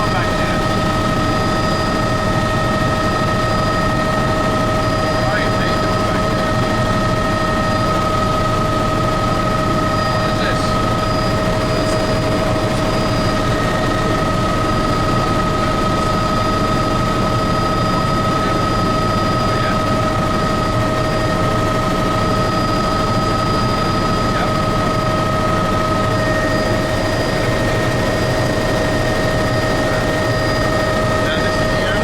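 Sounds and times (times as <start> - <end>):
helicopter turbine and rotor: 0.0 - 32.0.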